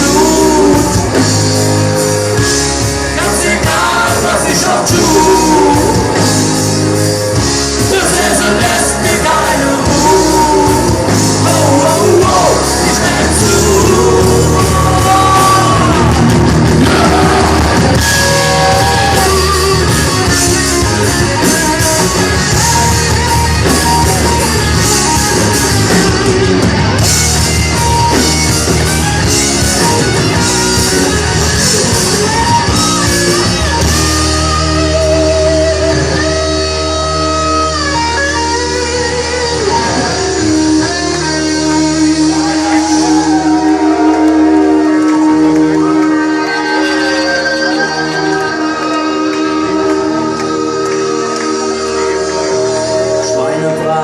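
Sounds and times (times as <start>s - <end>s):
person singing: 0.0s - 1.4s, 3.0s - 6.5s, 7.8s - 19.9s
live rock band playing: 0.0s - 54.0s.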